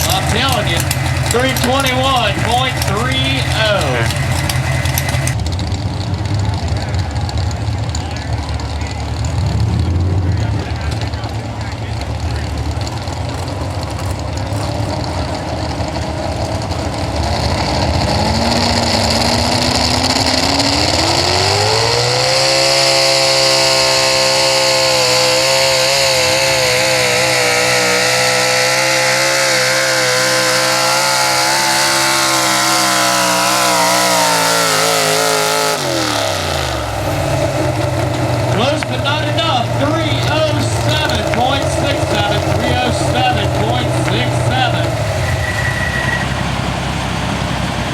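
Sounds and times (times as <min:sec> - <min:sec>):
truck engine revving under load: 0:00.0 - 0:47.9.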